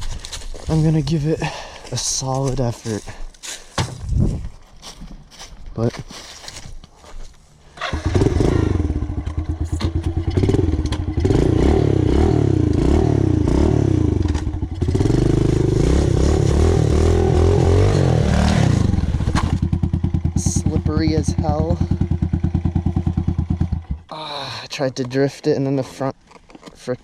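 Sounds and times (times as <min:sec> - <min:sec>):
motorbike engine revving: 0:07.7 - 0:24.1.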